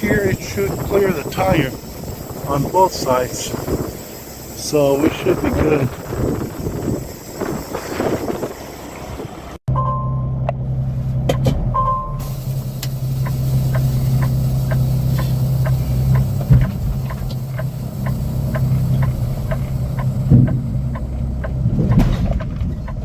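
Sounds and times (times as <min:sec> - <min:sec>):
diesel truck engine running: 0:00.0 - 0:23.0
even clicking: 0:12.8 - 0:23.0
heavy thumps of trailer coupling: 0:20.3 - 0:20.7, 0:21.6 - 0:22.9.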